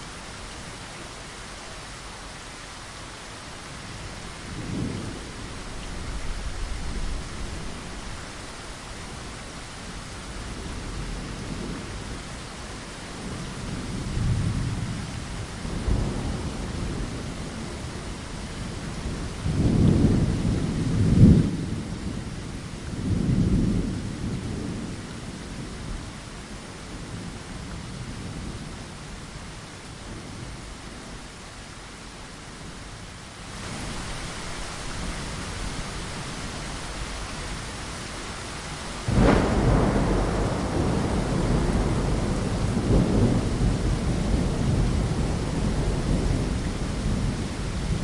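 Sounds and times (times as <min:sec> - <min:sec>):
rain against a window: 0:00.0 - 0:48.0
thunder rumbling: 0:33.6 - 0:48.0.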